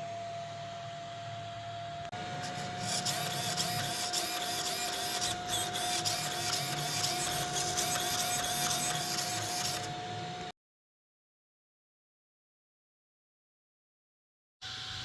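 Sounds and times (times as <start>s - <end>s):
small electric motor whirring: 2.2s - 10.5s.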